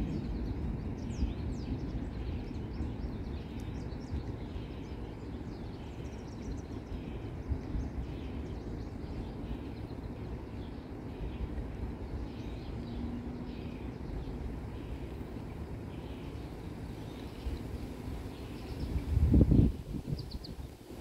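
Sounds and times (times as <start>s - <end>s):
low outdoor rumble: 0.0s - 21.0s
small songbirds chirping: 0.0s - 21.0s.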